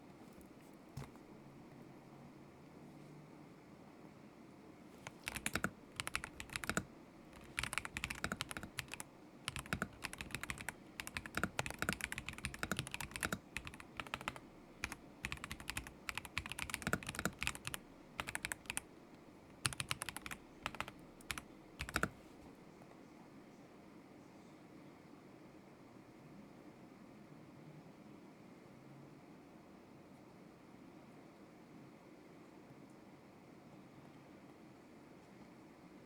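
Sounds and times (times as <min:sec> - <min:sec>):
mechanical keyboard typing: 0:05.0 - 0:18.9, 0:19.5 - 0:22.4.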